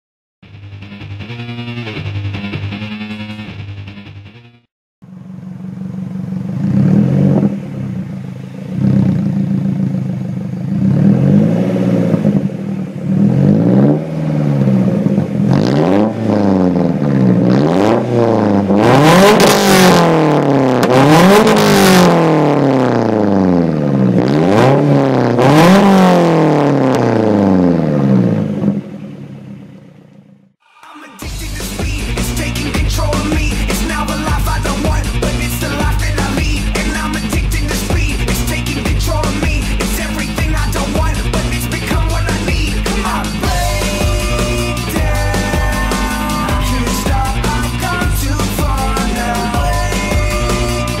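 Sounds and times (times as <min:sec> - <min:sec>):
engine revving in blips: 0:00.7 - 0:30.3, 0:31.3 - 0:51.0
car engine idling: 0:05.0 - 0:15.6, 0:26.6 - 0:51.0.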